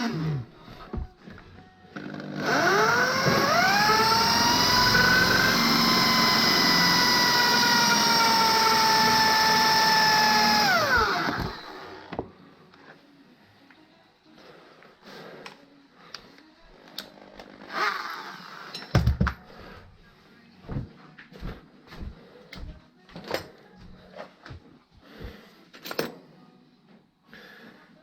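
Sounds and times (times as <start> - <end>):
power tool spinning: 0.0 - 0.5, 2.0 - 12.2, 17.0 - 18.9.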